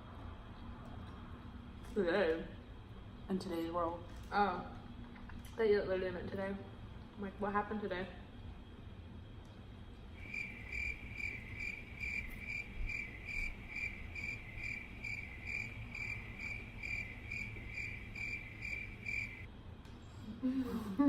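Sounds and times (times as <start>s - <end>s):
cricket chirping: 10.2s - 19.5s.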